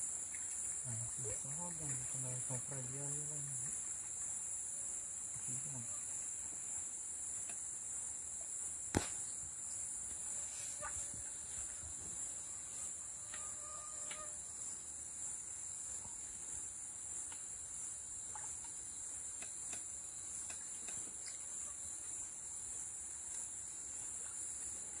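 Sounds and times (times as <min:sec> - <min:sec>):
high-pitched insect chorus: 0:00.0 - 0:25.0
sharp click: 0:08.9 - 0:09.2.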